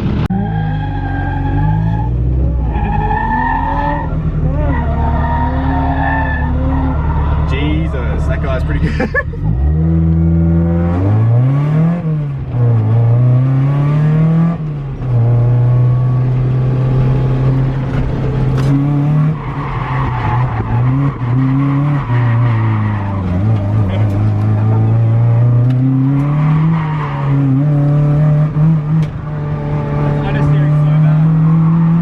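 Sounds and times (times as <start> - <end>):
tyre squeal: 0.4 - 7.6
car engine revving hard: 3.8 - 32.0.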